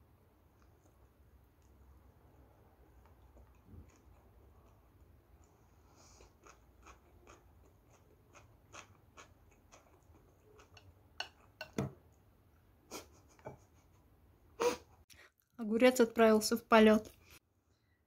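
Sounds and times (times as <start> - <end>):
chewing: 0.6 - 11.7.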